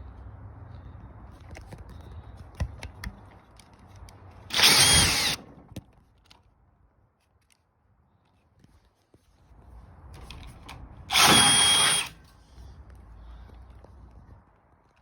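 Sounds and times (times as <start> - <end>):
power drill whine on metal: 4.5 - 5.4, 11.1 - 12.2.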